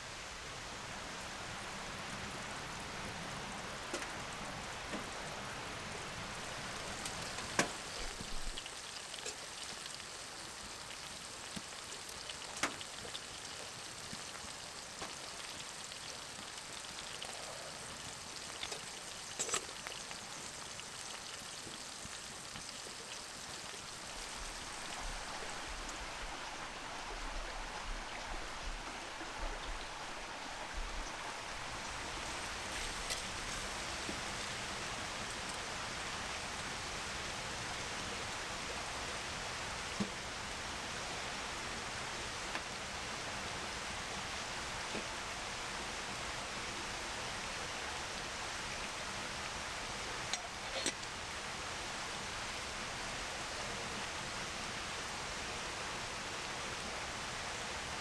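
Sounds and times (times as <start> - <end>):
wood fire crackling: 0.0 - 46.2.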